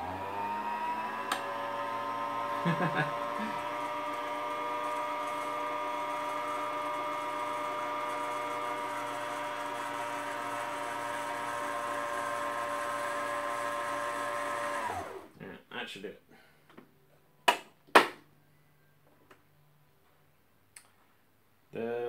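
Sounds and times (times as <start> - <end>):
sewing machine motor whining: 0.0 - 15.3.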